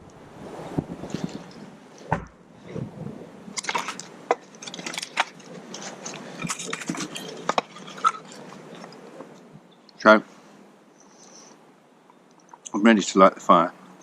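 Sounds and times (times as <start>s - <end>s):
dull thump: 2.1s - 3.1s.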